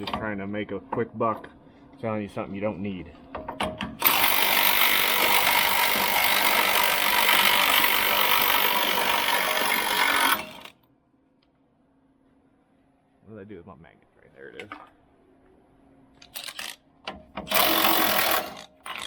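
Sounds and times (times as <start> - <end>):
power tool running: 4.0 - 10.7, 17.5 - 19.0.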